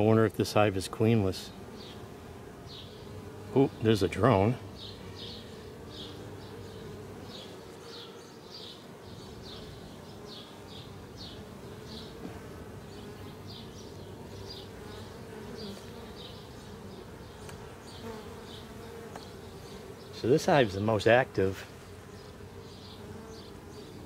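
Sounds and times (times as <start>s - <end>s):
honey bees buzzing: 0.0s - 24.0s.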